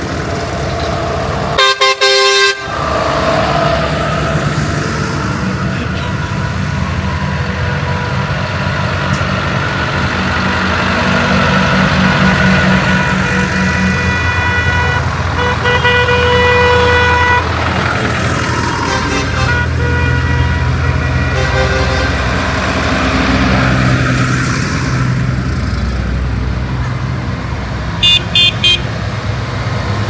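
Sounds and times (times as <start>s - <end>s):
tractor engines driving past: 0.0s - 30.0s
horn blowing steady note: 1.6s - 2.7s, 12.6s - 17.6s, 18.8s - 22.4s, 28.0s - 28.9s.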